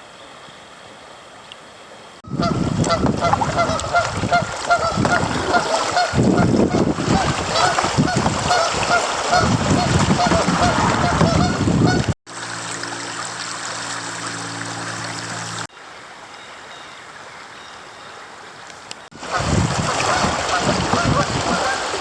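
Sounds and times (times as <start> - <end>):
rushing water: 0.0 - 22.0
geese honking: 2.2 - 12.1, 19.2 - 22.0
low hum: 12.3 - 15.7.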